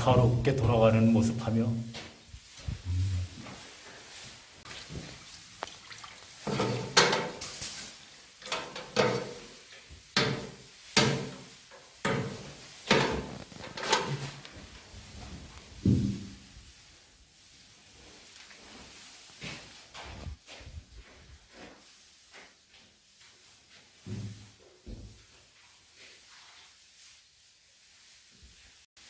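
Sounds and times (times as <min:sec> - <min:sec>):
paintbrush strokes on wood: 0:00.0 - 0:05.5, 0:14.2 - 0:28.9.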